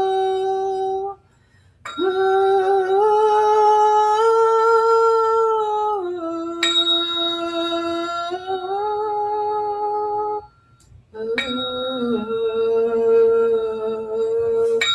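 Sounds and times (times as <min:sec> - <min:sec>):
woman singing a held ooh: 0:00.0 - 0:01.3, 0:01.9 - 0:14.9
high clink: 0:01.8 - 0:03.0, 0:06.6 - 0:08.2, 0:10.4 - 0:12.6, 0:14.6 - 0:14.9.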